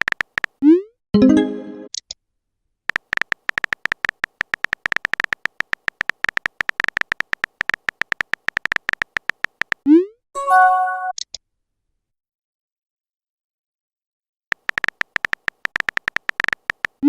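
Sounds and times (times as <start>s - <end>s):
phone keyboard typing clicks: 0.0s - 0.6s, 2.9s - 9.9s, 14.5s - 17.0s
message chime: 1.2s - 1.9s, 10.4s - 11.1s.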